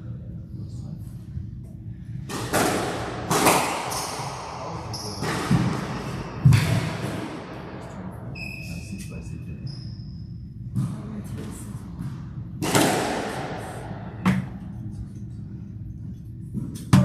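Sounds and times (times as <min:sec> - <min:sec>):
squash ball struck hard: 0:02.3 - 0:07.5, 0:12.6 - 0:14.5.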